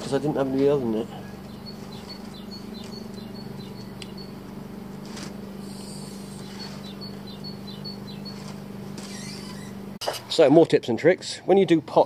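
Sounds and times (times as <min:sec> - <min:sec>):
steady low hum: 0:00.0 - 0:12.0
small bird chirping: 0:01.0 - 0:04.5, 0:05.6 - 0:09.8.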